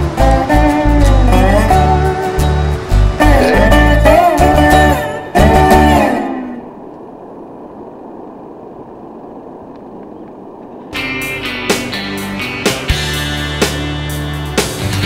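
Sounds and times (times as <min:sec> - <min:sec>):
rock music with drums: 0:00.0 - 0:04.8, 0:11.0 - 0:15.0
guitar-led country music: 0:00.0 - 0:06.3, 0:11.0 - 0:15.0
low rushing noise: 0:00.0 - 0:15.0.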